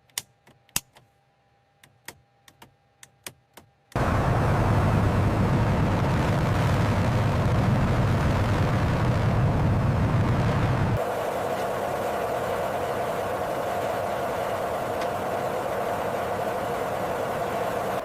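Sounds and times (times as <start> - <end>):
steady hum with whine: 0.0 - 18.0
jet engine rumble: 4.0 - 18.0.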